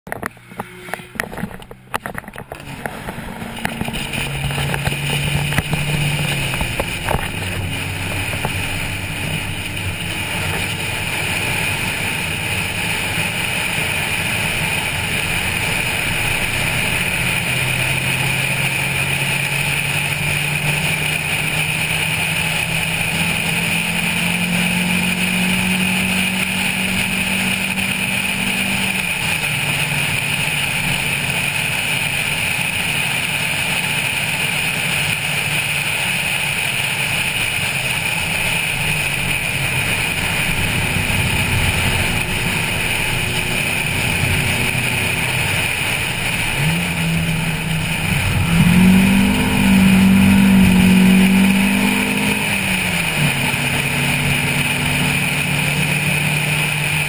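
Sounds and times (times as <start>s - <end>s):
car engine pulling: 0.0s - 57.0s
wind and road noise: 0.0s - 57.0s
knocks and clicks: 0.1s - 8.7s.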